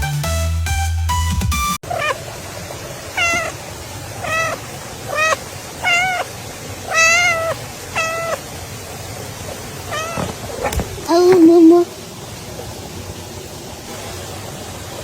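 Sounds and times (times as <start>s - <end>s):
cat meowing: 1.8s - 2.3s, 3.1s - 3.6s, 4.2s - 8.5s, 9.8s - 11.9s.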